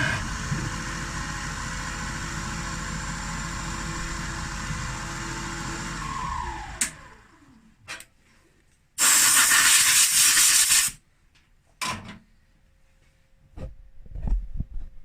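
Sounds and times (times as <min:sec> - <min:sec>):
air blowing hiss: 0:09.0 - 0:11.0.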